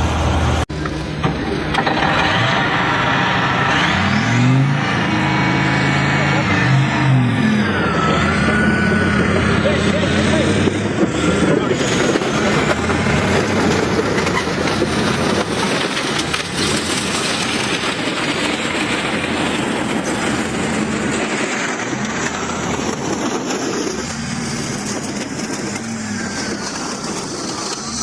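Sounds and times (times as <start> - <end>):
heavy diesel machinery rumbling: 0.0 - 28.0
mechanical rattling and clattering: 10.6 - 28.0.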